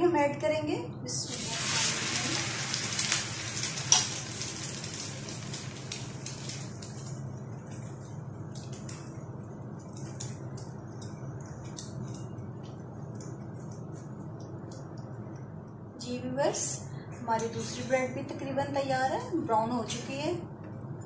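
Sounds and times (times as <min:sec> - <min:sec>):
bread sizzling in oil: 0:01.3 - 0:15.1
oil crackling and popping: 0:01.3 - 0:15.8.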